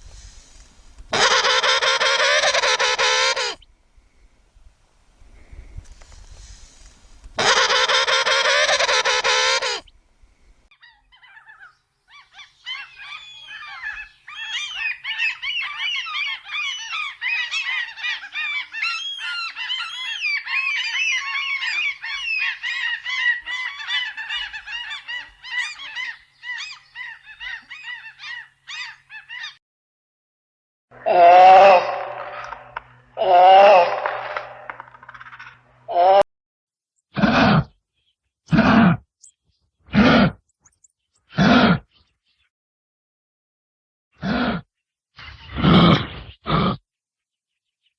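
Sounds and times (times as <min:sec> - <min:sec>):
loud drawn-out bird call: 0:01.1 - 0:03.6, 0:07.4 - 0:09.9, 0:10.8 - 0:29.6, 0:30.9 - 0:36.2
chorus of birds calling: 0:10.8 - 0:29.6, 0:30.9 - 0:35.6.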